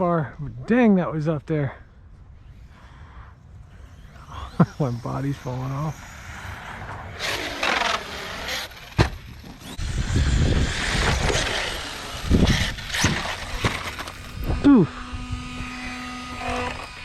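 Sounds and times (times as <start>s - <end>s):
electric motor whine: 3.4s - 17.0s
tyres scrabbling over ground: 10.8s - 14.3s.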